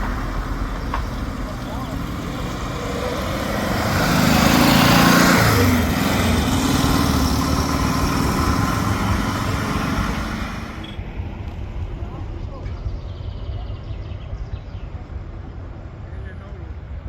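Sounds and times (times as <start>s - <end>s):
vehicle engine running: 0.0s - 13.3s.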